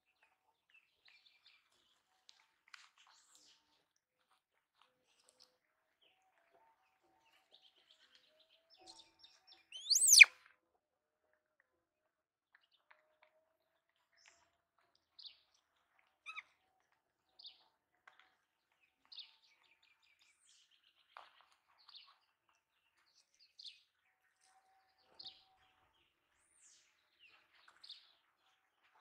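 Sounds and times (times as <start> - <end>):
bird whistles rising and falling: 9.8 - 10.3
small bird chirping: 9.8 - 10.3.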